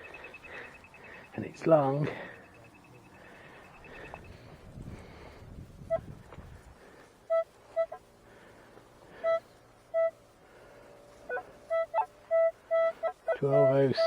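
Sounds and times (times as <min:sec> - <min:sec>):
metal detector beeps: 0:00.0 - 0:04.5, 0:11.8 - 0:14.0.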